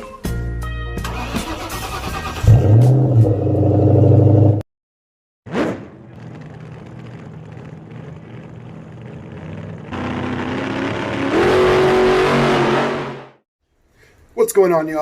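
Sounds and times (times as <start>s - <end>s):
car engine running: 6.1s - 11.3s.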